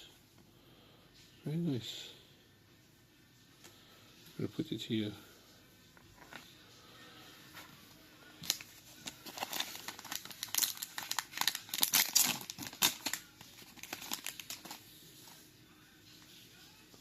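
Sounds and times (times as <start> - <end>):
wrapper crinkling and tearing: 8.4 - 15.0.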